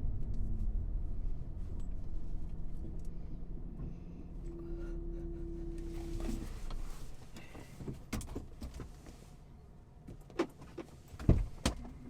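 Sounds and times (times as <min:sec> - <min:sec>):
sharp clicks and knocks in car: 0:07.4 - 0:09.0, 0:10.0 - 0:12.0.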